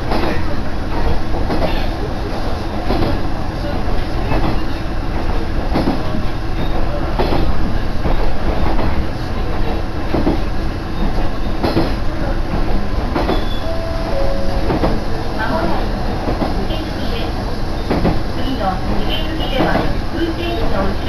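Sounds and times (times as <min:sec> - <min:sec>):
railcar engine and wheels rumbling: 0:00.0 - 0:21.0
thin tone: 0:13.6 - 0:15.2.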